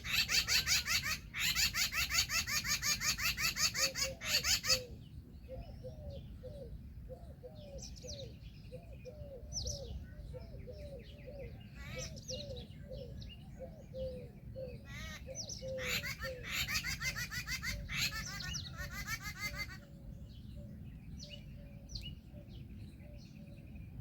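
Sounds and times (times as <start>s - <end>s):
bird chattering calls: 0.0s - 4.9s, 14.9s - 19.9s
birds calling: 0.0s - 24.0s.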